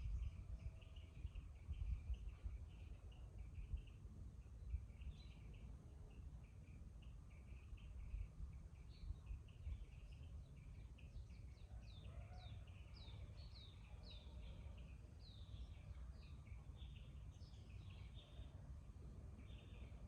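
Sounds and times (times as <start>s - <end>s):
low background rumble: 0.0s - 12.1s.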